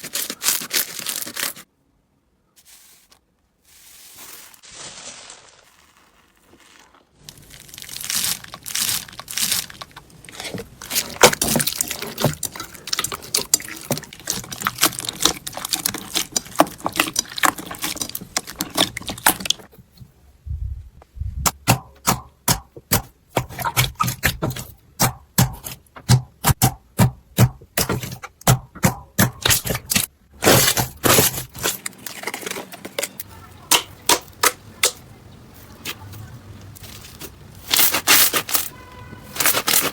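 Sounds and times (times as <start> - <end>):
slime crackling and popping: 4.6 - 19.7.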